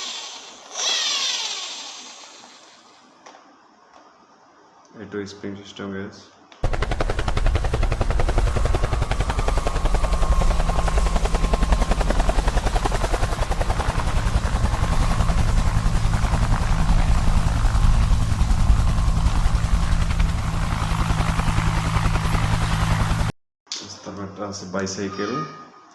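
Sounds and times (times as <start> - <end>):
toy helicopter rotor chop: 0.0 - 3.1, 6.6 - 23.3.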